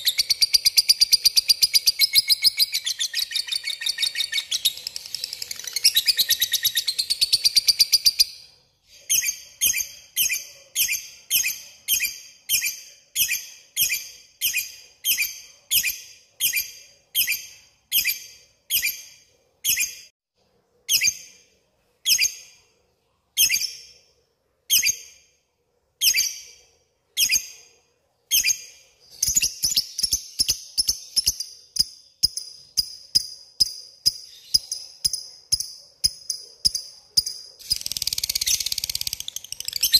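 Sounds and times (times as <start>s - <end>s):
lovebird chattering and chirping: 0.0s - 20.1s, 28.3s - 39.9s.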